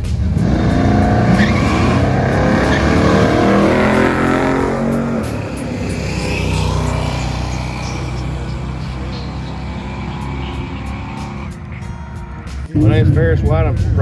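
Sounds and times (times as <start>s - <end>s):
drag car engine at full throttle: 0.0s - 14.0s.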